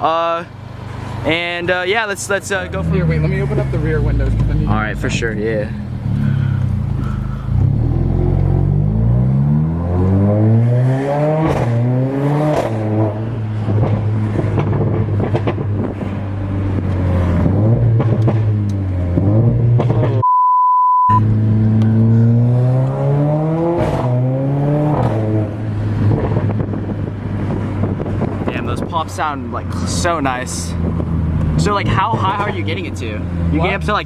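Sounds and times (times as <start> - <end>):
car engine accelerating hard: 0.6 - 20.2, 21.1 - 34.0
exhaust pops and crackles: 2.2 - 5.4, 12.5 - 20.2, 25.0 - 33.2
censor beep: 20.2 - 21.3.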